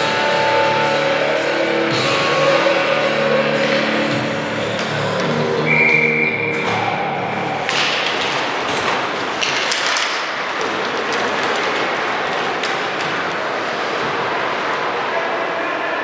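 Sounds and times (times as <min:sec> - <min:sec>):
steady hubbub: 0:00.0 - 0:16.0
players' footsteps: 0:07.5 - 0:14.8.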